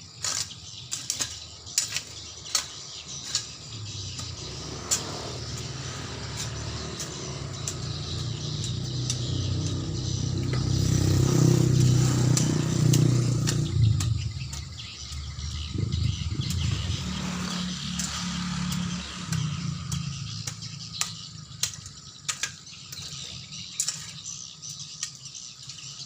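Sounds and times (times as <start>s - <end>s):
engine running: 2.0s - 22.2s.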